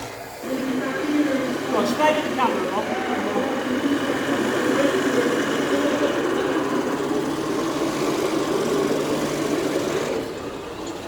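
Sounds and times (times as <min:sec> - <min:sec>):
remote-controlled model vehicle drone: 0:00.0 - 0:11.0.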